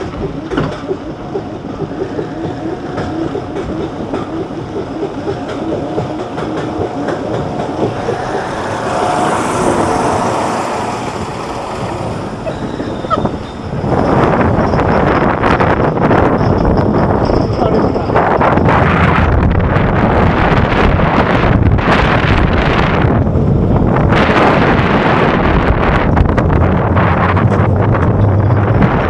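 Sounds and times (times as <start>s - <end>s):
lift hill chain clacking: 0.0s - 19.2s
loud rushing noise: 4.1s - 14.6s.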